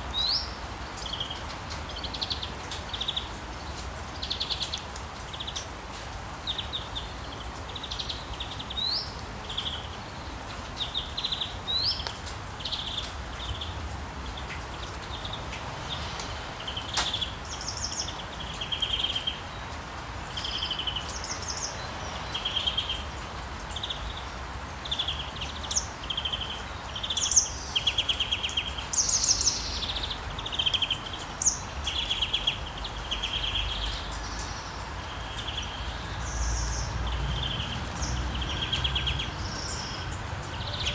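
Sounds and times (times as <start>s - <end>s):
birds chirping and trilling: 24.9s - 40.9s.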